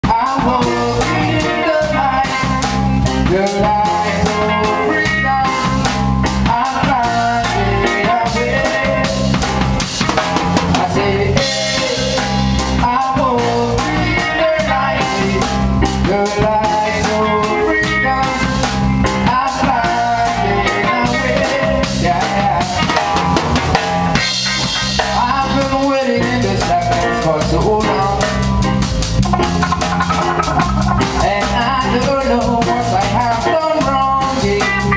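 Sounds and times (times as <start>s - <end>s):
drum kit with rimshots: 27.4s - 33.6s
bass line: 27.9s - 33.4s
melodic instrument lines: 29.2s - 32.2s.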